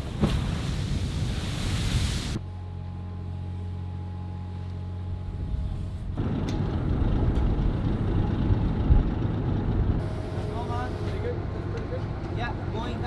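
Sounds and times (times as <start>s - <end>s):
ship machinery humming: 6.2s - 13.0s.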